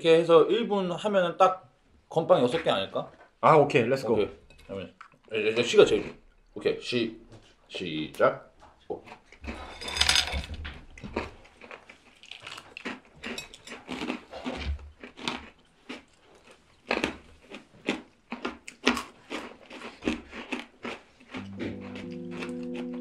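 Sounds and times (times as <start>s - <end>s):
people crunching hard biscuits: 9.0s - 23.0s.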